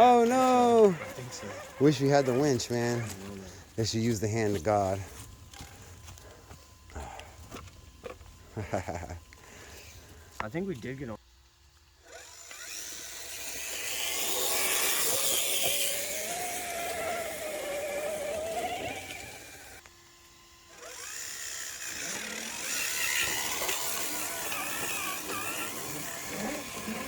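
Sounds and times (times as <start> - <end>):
rc car electric motor whining: 0.0 - 27.0.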